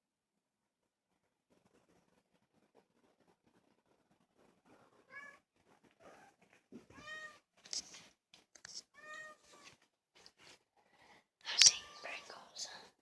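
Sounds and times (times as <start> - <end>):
kitten meowing: 11.6 - 12.3.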